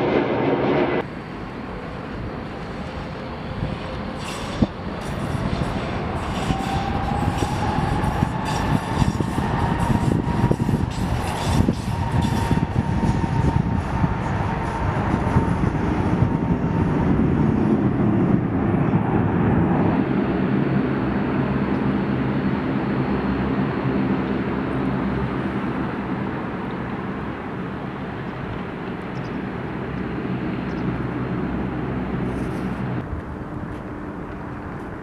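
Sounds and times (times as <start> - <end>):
train clattering with a whine: 0.0 - 18.5
aircraft engine hum: 0.0 - 35.0.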